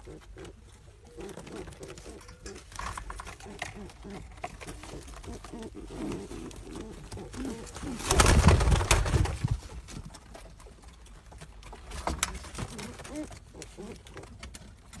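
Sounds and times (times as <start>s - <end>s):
pigeons cooing: 0.0s - 8.8s, 12.1s - 15.0s
clattering and rustling of wings: 0.0s - 15.0s.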